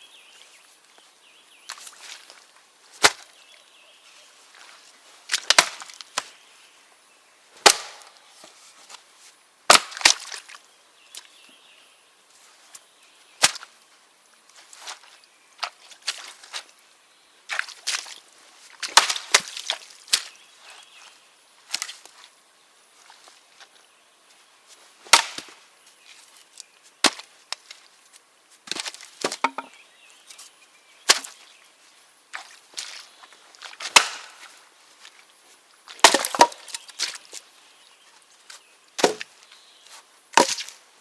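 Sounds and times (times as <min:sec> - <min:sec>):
wood cracking under splitting maul: 0:07.6 - 0:08.2, 0:25.1 - 0:25.6, 0:28.7 - 0:29.7, 0:33.8 - 0:34.5, 0:36.0 - 0:37.0, 0:39.0 - 0:39.3.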